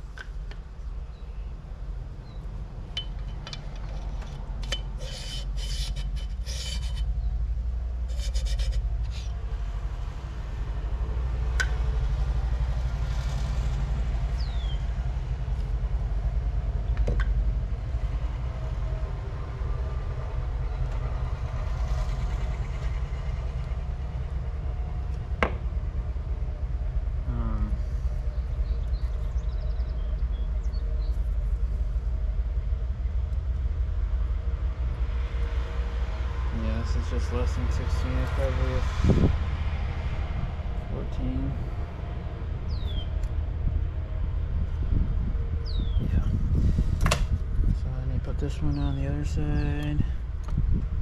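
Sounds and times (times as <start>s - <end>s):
steady low rumble: 0.0s - 51.0s.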